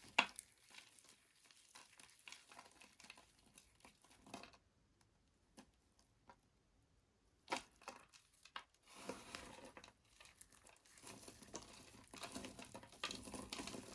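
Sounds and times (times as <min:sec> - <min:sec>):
soap crackling: 0:00.0 - 0:04.6, 0:07.5 - 0:13.9
knife cutting dry soap: 0:00.0 - 0:04.7, 0:07.4 - 0:13.9.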